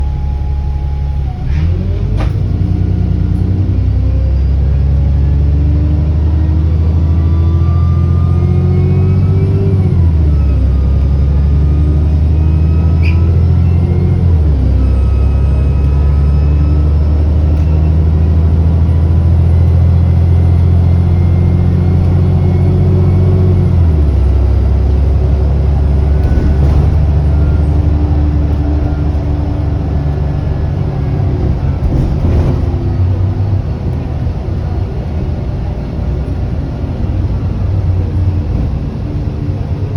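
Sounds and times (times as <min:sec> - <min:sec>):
turbo whine: 0:00.0 - 0:03.6
bus engine accelerating: 0:00.0 - 0:39.9.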